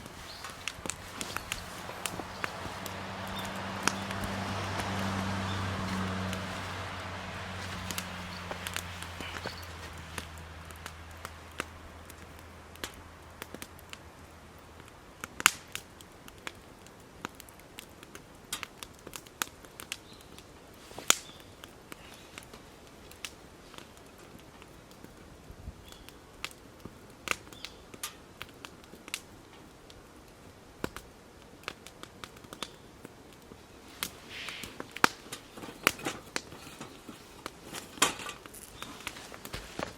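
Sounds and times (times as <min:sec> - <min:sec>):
campfire crackling: 0:00.0 - 0:39.9
faint hiss: 0:33.4 - 0:39.9.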